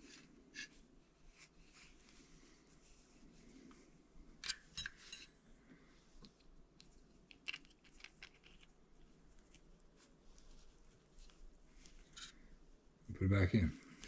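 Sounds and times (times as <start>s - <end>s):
small parts clicking and knocking: 6.3s - 8.8s.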